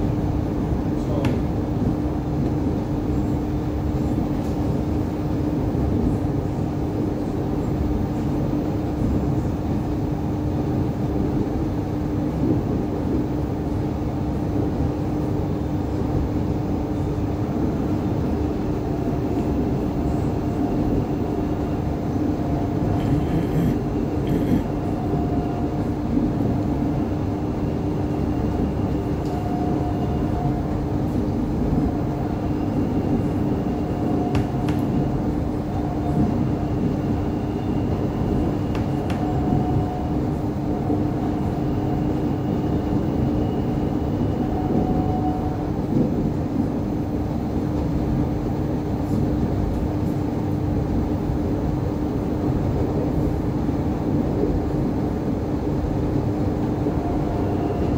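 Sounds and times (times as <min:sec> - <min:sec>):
constant hum: 0:00.0 - 0:57.9
train wheels running: 0:19.1 - 0:47.0.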